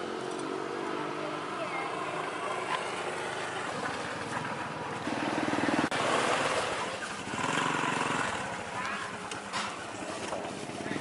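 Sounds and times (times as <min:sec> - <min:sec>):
engine puttering: 0:00.0 - 0:11.0.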